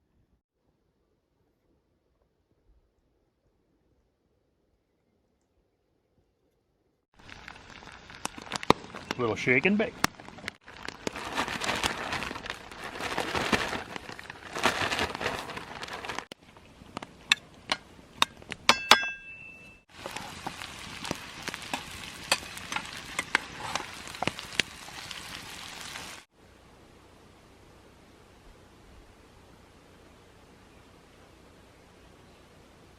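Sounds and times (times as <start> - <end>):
fish sizzling in hot oil: 7.2 - 12.7, 19.9 - 26.3
utensil clinking on pan: 18.7 - 19.8, 21.7 - 23.9.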